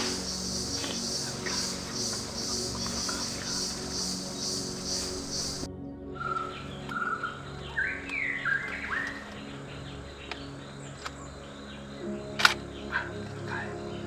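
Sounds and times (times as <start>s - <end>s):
faint clicks: 0.0s - 5.7s
small bird calling: 0.0s - 12.0s.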